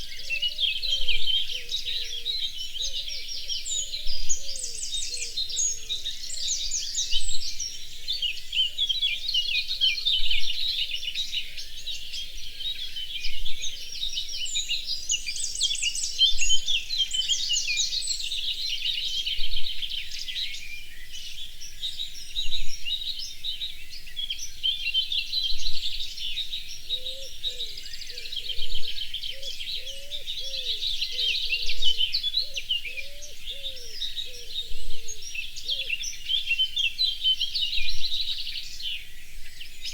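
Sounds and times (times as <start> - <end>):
chorus of birds chirping: 0.0 - 39.9
lower repeated bird call: 25.5 - 39.9.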